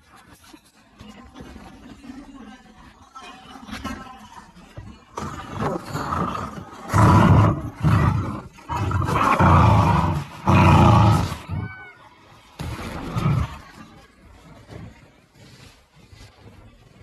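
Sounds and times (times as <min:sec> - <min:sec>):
dogs growling in play: 0:05.1 - 0:11.7, 0:12.6 - 0:14.0.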